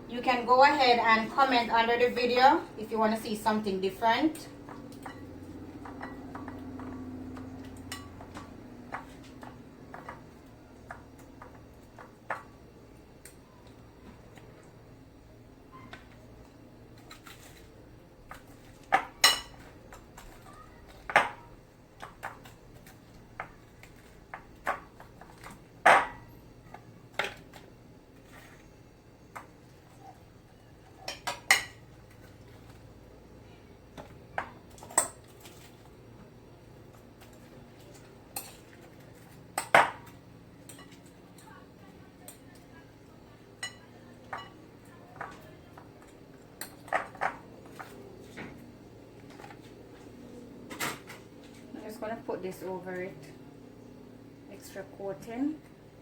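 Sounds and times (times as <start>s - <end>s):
utensil clinking on pan and dishes: 4.3s - 12.5s, 18.3s - 26.3s, 34.0s - 35.9s, 36.9s - 41.5s, 43.6s - 48.0s.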